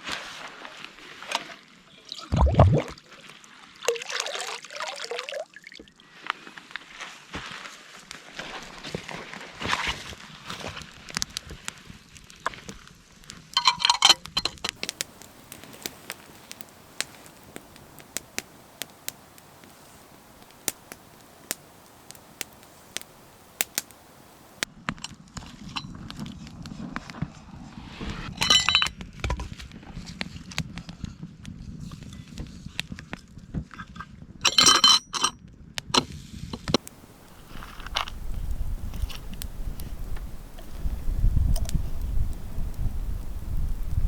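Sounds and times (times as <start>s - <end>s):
campfire wood crackling and popping: 9.8s - 13.7s, 14.3s - 24.7s, 36.7s - 44.0s
wood crunching and snapping: 14.7s - 24.6s, 36.7s - 44.0s.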